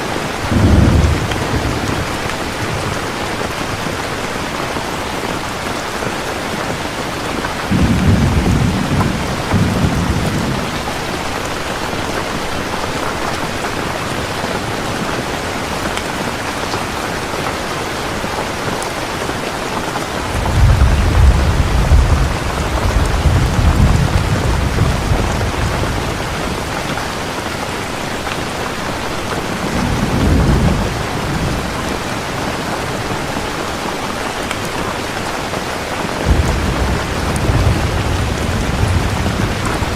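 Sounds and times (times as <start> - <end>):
heavy rain: 0.0 - 39.9
rolling thunder: 0.5 - 2.9, 7.7 - 11.0, 20.3 - 27.0, 36.2 - 39.9.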